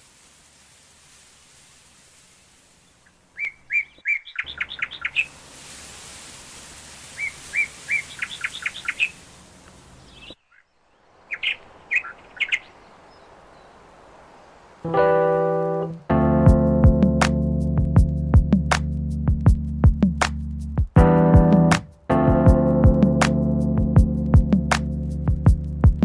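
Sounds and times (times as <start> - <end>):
faint hiss: 0.0 - 3.8, 4.5 - 16.2
songbird singing: 2.8 - 5.5, 6.9 - 16.2
keyboard music: 14.9 - 26.0.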